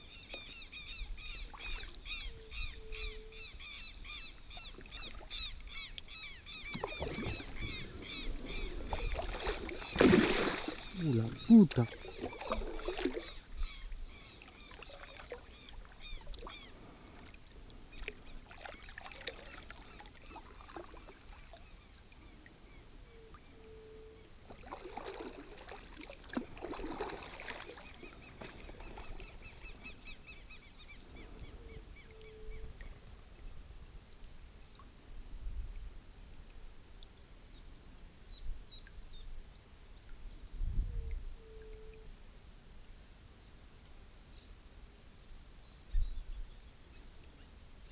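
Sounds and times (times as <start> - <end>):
paddle splashing water: 0.0 - 22.5, 24.3 - 31.3
short low call: 6.8 - 12.5.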